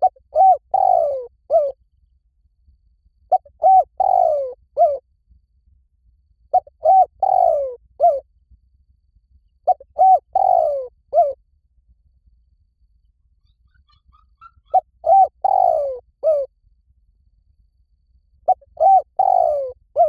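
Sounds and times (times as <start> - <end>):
dove cooing: 0.0 - 1.8, 3.3 - 5.0, 6.5 - 8.2, 9.6 - 11.4, 13.7 - 16.5, 18.5 - 20.0.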